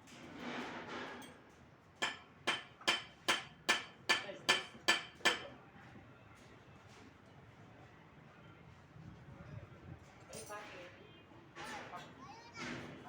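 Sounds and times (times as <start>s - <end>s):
hammer striking metal: 2.0s - 5.5s.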